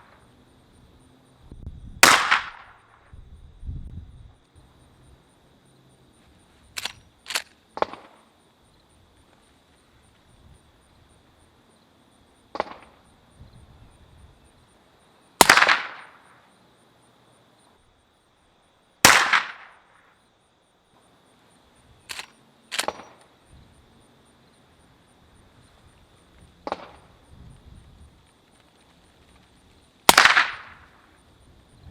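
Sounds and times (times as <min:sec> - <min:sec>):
suppressed gunshots: 0:02.0 - 0:02.7, 0:15.4 - 0:16.0, 0:19.0 - 0:19.7, 0:22.1 - 0:23.2, 0:30.1 - 0:30.7
quieter sharp cracks: 0:02.0 - 0:03.1, 0:06.8 - 0:08.2, 0:12.5 - 0:13.0, 0:15.4 - 0:16.3, 0:19.0 - 0:20.0, 0:22.1 - 0:23.3, 0:26.6 - 0:27.1, 0:30.1 - 0:31.1.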